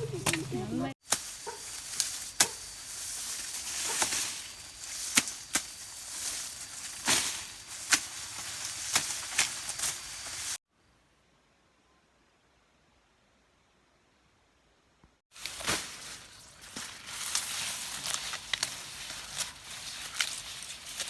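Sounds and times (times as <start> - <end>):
rustling leaves: 0.0 - 10.6, 15.3 - 21.0
blade chopping grass stalks: 0.1 - 10.6, 15.4 - 21.0.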